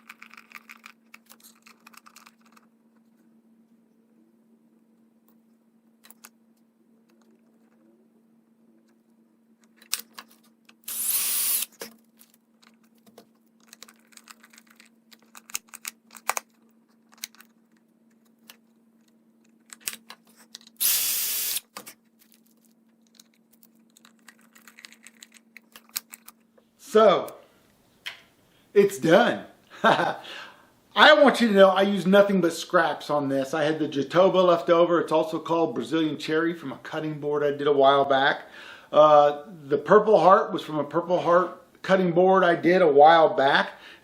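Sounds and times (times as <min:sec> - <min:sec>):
small objects clicking: 0:00.0 - 0:02.7, 0:22.2 - 0:26.4
loud hiss: 0:10.9 - 0:11.7, 0:20.8 - 0:21.6.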